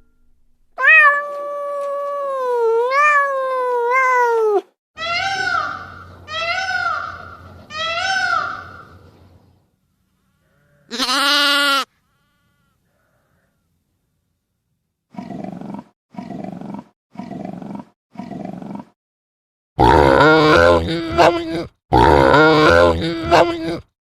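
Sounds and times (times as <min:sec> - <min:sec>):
cat meowing: 0:00.8 - 0:05.9
loud drawn-out animal call: 0:05.0 - 0:09.0, 0:10.2 - 0:13.6
animals grunting: 0:15.1 - 0:19.0, 0:19.8 - 0:23.9.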